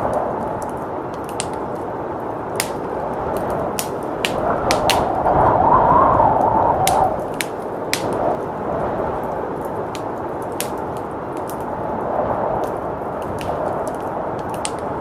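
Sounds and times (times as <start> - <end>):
blizzard wind howling: 0.0 - 15.0
wood fire crackling: 0.0 - 15.0.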